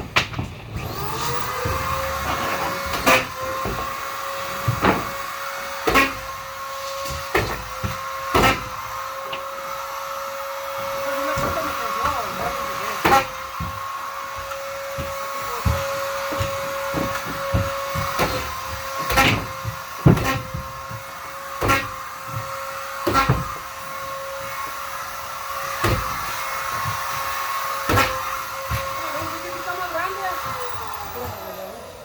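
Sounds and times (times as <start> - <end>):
vacuum cleaner motor whine: 0.7 - 32.0
knocks and clatters: 13.0 - 24.2.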